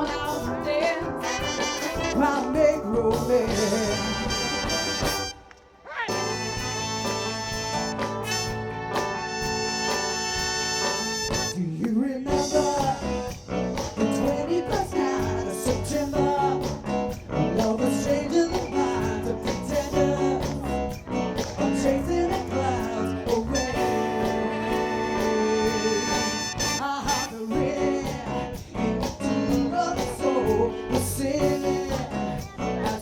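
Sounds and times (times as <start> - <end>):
soul band playing: 0.0 - 33.0
lead melody with bending notes: 6.1 - 11.6.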